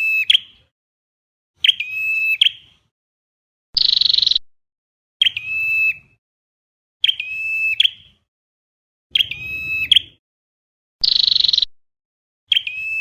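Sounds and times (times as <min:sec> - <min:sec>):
flowerpecker calls: 0:03.8 - 0:04.4, 0:07.0 - 0:08.2, 0:09.1 - 0:10.2, 0:11.0 - 0:11.7.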